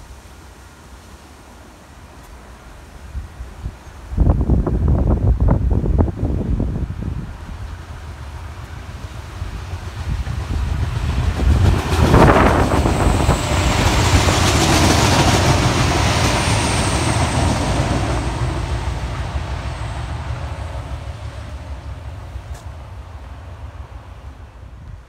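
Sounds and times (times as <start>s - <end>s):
train passing on rails: 0.0s - 25.0s.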